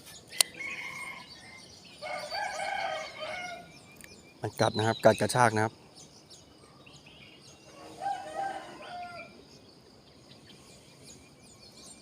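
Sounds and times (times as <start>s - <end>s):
small birds chirping: 0.0s - 12.0s
rooster crowing: 0.5s - 3.7s, 7.7s - 9.4s.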